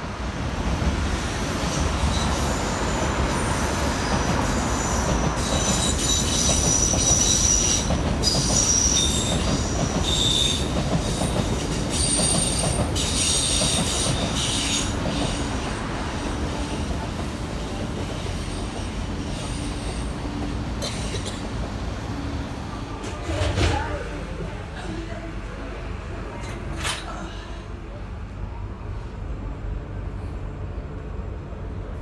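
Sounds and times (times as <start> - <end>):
train rumbling over bridge: 0.0 - 32.0
train wheels squealing: 2.0 - 15.7.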